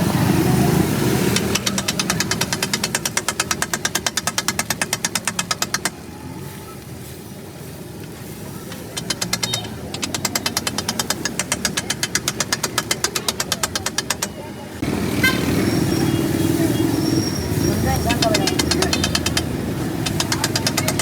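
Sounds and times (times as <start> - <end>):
metal spatula striking griddle: 1.4 - 6.0, 8.8 - 14.4.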